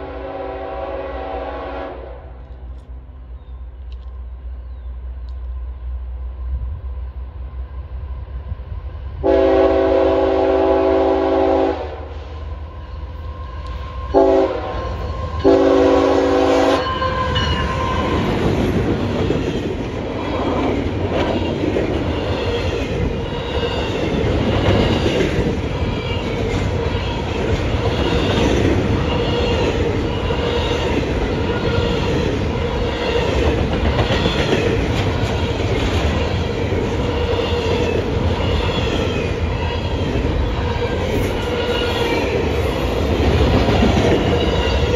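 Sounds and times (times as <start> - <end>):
locomotive air horn blasts: 0.0 - 2.4, 9.2 - 12.2, 14.1 - 18.1
train wheels rumbling on rails: 0.0 - 44.9.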